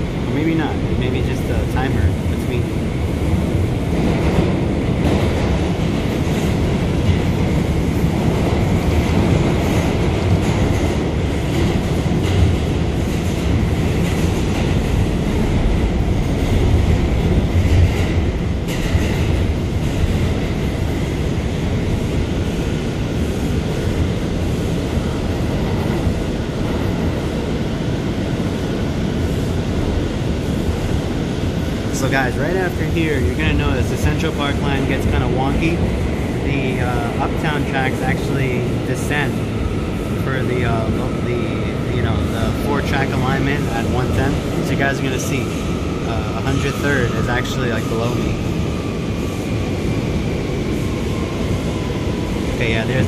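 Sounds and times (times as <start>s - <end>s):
subway train wheels rumbling on rail: 0.0s - 53.0s.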